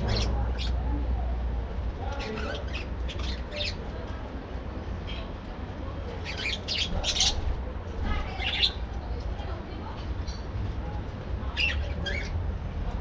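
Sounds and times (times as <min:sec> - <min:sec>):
budgerigars chirping and squawking: 0:00.0 - 0:00.8, 0:02.0 - 0:04.0, 0:06.2 - 0:07.6, 0:08.2 - 0:09.0, 0:11.5 - 0:12.4.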